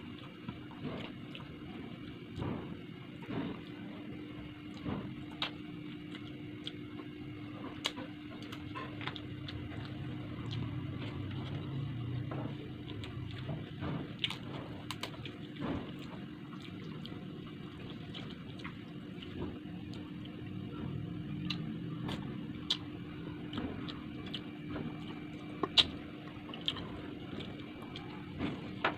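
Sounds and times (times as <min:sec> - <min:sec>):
steady low hum: 0:00.0 - 0:28.9
wet chewing: 0:04.6 - 0:20.4, 0:21.4 - 0:28.9
mouth clicks and smacks: 0:25.6 - 0:26.0.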